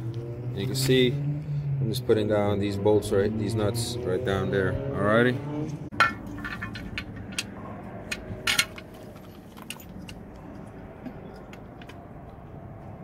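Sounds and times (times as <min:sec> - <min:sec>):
metal tools and nuts clinking: 0:05.9 - 0:10.2.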